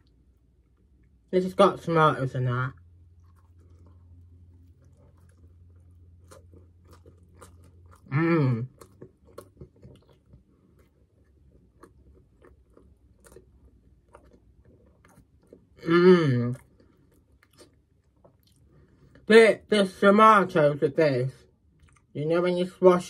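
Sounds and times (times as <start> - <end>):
person chewing pizza: 2.6 - 19.3, 21.5 - 22.2.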